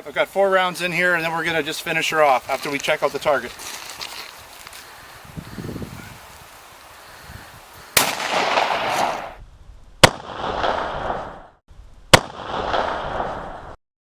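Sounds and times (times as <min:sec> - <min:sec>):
shotgun blasts with echo: 0:08.0 - 0:09.4, 0:10.0 - 0:11.5, 0:12.1 - 0:13.8.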